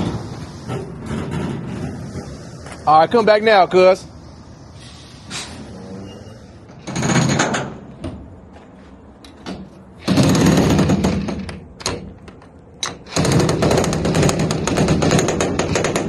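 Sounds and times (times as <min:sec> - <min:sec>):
pneumatic hammer rattling: 0:00.0 - 0:02.5, 0:06.7 - 0:08.1, 0:09.3 - 0:16.0.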